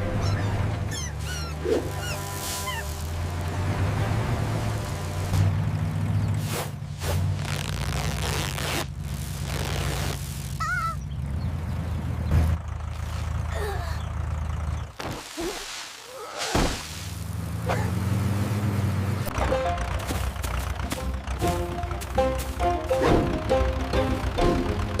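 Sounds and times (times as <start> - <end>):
tractor engine running: 0.0 - 15.1, 17.0 - 25.0
short squeak: 0.1 - 3.2.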